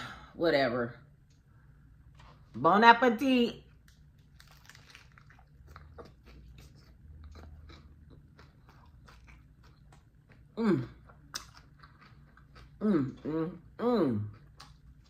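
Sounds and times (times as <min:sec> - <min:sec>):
crunchy chewing of lettuce: 0:04.1 - 0:13.6.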